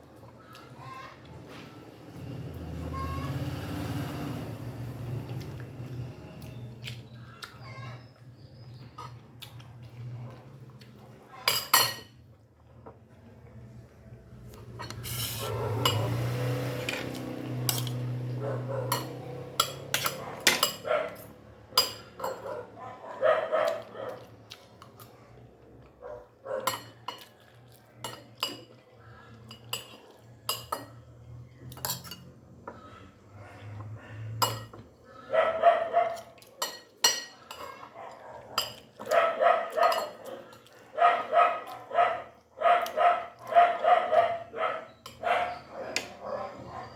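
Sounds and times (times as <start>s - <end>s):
cutlery clinking on a plate: 11.4s - 12.2s, 18.9s - 20.9s, 21.8s - 22.5s, 26.7s - 27.4s, 29.5s - 31.0s, 31.7s - 32.3s, 34.4s - 34.9s, 36.6s - 37.7s, 38.6s - 40.3s
dog barking: 15.3s - 16.3s, 18.3s - 24.4s, 26.0s - 27.0s, 33.4s - 46.9s.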